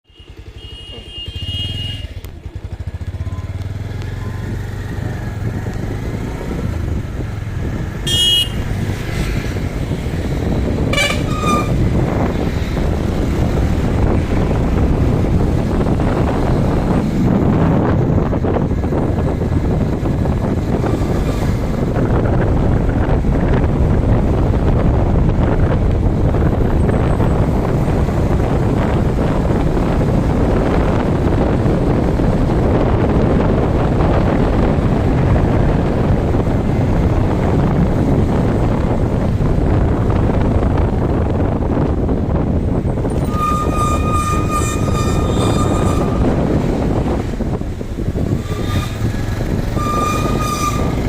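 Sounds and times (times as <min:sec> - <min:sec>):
horn toots: 0:00.1 - 0:02.3, 0:07.9 - 0:09.2, 0:10.8 - 0:12.1, 0:43.1 - 0:47.4, 0:48.3 - 0:51.0
motorcycle engine running: 0:00.1 - 0:51.0
rushing noise: 0:41.7 - 0:51.0.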